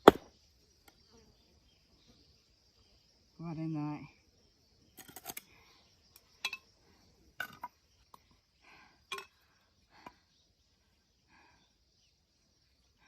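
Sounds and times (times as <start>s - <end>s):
blade knocking on firewood: 0.0s - 0.3s.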